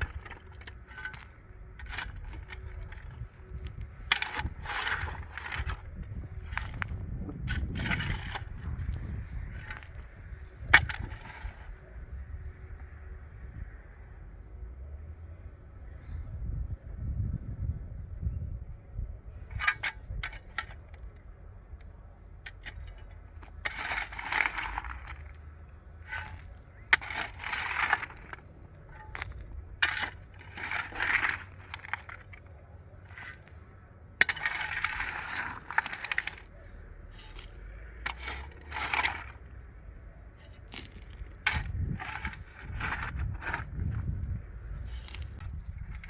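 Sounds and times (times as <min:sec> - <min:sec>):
hard objects scraping and clinking: 0:00.0 - 0:11.8, 0:19.5 - 0:21.1, 0:22.4 - 0:39.7, 0:40.4 - 0:46.0.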